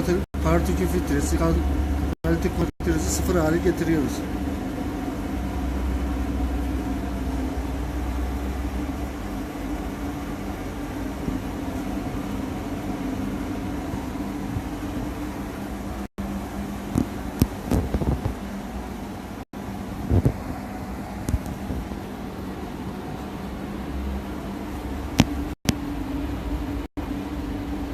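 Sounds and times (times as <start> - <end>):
deep drone: 0.0 - 27.9
machine humming: 0.0 - 27.9.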